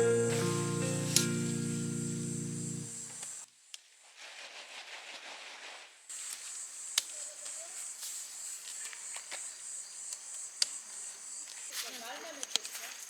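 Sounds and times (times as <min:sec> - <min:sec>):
insects chirping: 0:00.0 - 0:03.4.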